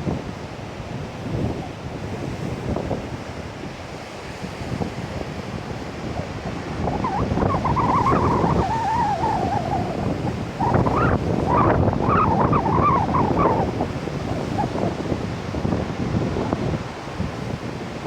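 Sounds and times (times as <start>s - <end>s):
heavy surf breaking: 0.0s - 18.0s
wind buffeting microphone: 0.0s - 18.0s
wavering whistle: 6.9s - 14.8s.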